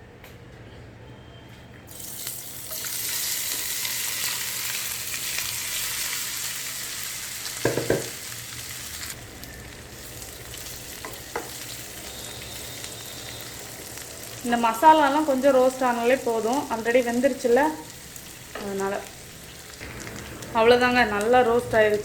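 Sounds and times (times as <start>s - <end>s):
slices sizzling in hot oil: 1.9s - 22.0s
knocks against pan: 7.6s - 8.1s.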